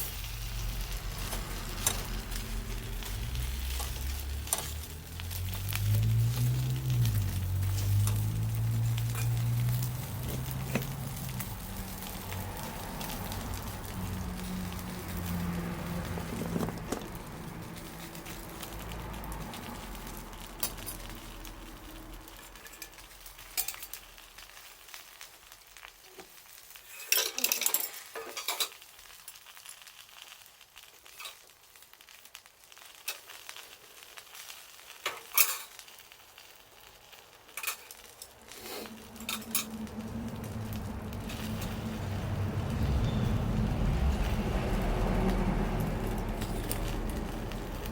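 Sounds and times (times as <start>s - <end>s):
fire crackles: 0.0s - 47.9s
food sizzling over campfire: 0.0s - 47.9s
low rumble: 38.9s - 47.9s.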